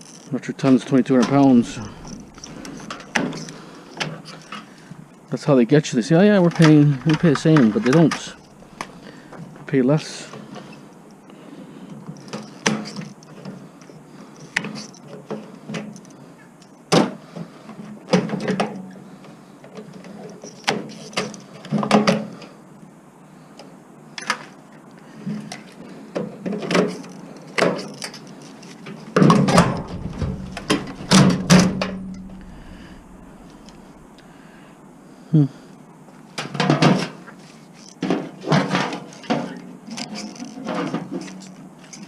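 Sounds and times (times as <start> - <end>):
hand tools clanking on metal: 0.8 - 3.7, 29.3 - 34.3.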